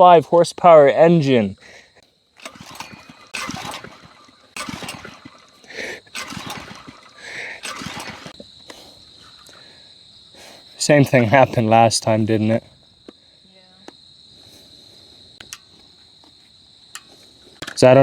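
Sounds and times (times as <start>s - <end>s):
engine turning over: 2.4s - 8.4s
recoil starter pulls: 2.4s - 9.7s, 16.9s - 18.0s.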